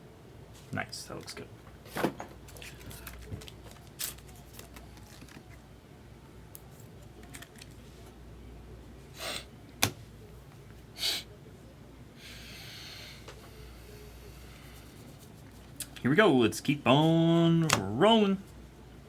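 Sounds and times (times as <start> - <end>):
trading cards rustling: 2.4 - 5.6, 7.2 - 7.9.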